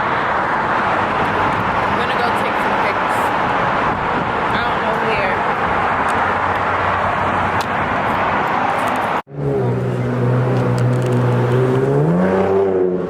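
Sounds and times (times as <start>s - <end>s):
road traffic noise: 0.0s - 13.0s
vehicle engine running: 9.3s - 12.2s.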